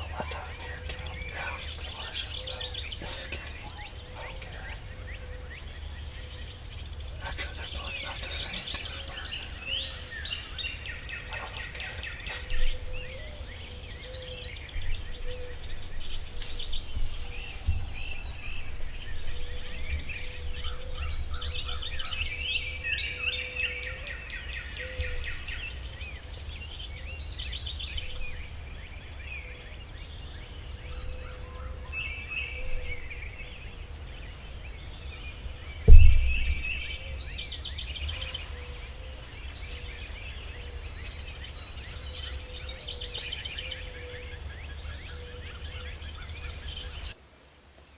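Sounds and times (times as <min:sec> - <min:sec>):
low outdoor rumble: 0:00.0 - 0:47.2
birds chirping: 0:00.0 - 0:47.9
loud low thump: 0:35.9 - 0:37.0.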